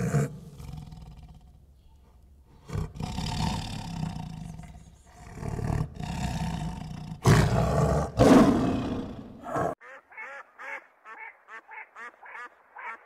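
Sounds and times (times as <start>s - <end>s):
big cat roaring: 0.0s - 1.6s, 2.6s - 9.8s.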